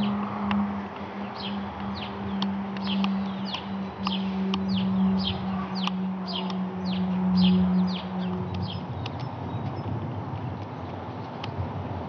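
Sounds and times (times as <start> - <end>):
steady low hum: 0.0 - 12.0
sharp clicks: 1.8 - 4.7, 8.3 - 9.8.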